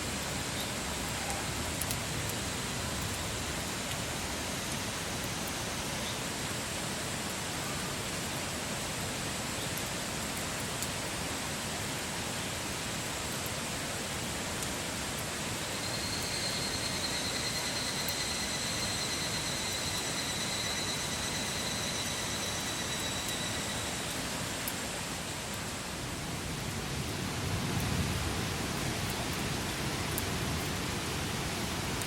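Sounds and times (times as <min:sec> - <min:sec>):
faint fire crackles: 0:00.1 - 0:08.0
thin high whistle: 0:15.8 - 0:24.1.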